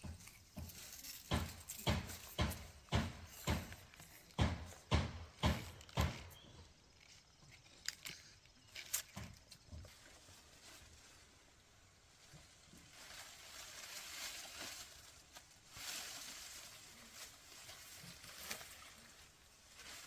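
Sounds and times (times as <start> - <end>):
sharp knocks: 0.0 - 6.4.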